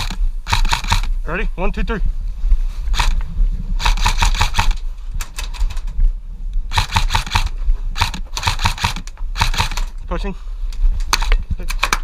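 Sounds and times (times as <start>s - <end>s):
airsoft guns firing: 0.0s - 1.1s, 3.8s - 4.8s, 6.7s - 9.9s
constant low rumble: 0.0s - 12.0s.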